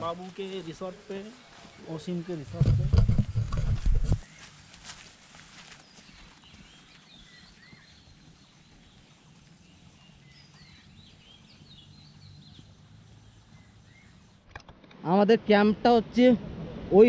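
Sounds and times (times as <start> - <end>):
birds chirping: 0.0 - 3.4, 4.0 - 4.7, 5.6 - 14.4.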